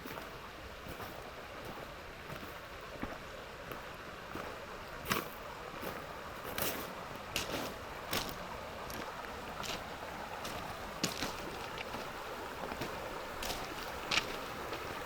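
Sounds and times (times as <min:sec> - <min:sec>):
river rushing: 0:00.0 - 0:15.0
footsteps crunching on gravel: 0:05.0 - 0:15.0.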